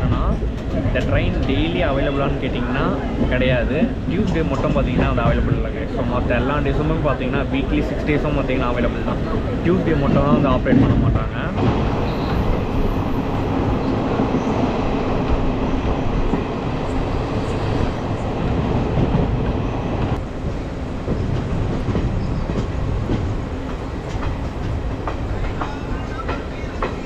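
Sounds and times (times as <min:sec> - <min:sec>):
train rumbling on rails: 0:00.0 - 0:27.0.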